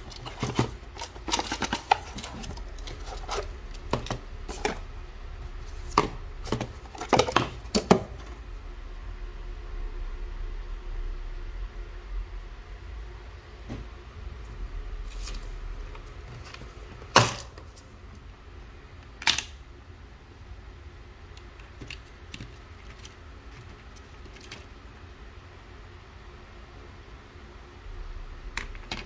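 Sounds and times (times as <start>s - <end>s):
clicks and knocks of parts handled: 0.0s - 4.8s, 21.4s - 24.7s
low steady hum: 0.0s - 29.0s.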